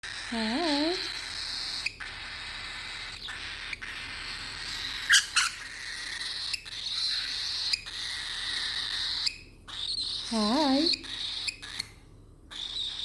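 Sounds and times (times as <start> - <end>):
cockatiel vocalising: 0.0 - 13.0
cockatiel squawks: 1.1 - 10.3.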